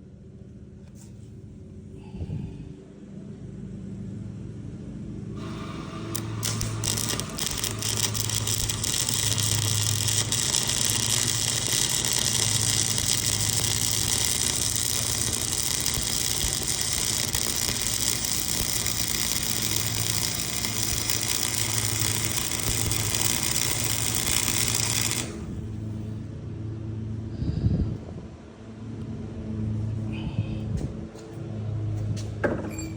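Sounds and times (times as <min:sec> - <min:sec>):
sprayer pump hissing: 0:05.4 - 0:25.6
lawn mower engine running: 0:05.4 - 0:26.2.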